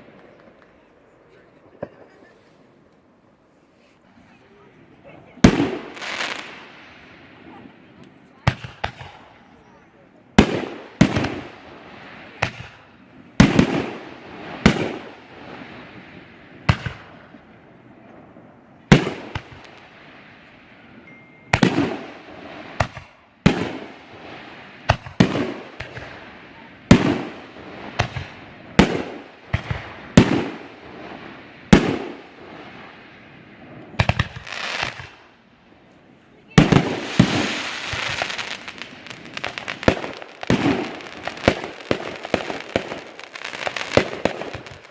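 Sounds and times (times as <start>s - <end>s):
crackling firework volley: 0.0s - 44.9s
firework shells bursting: 36.6s - 44.9s.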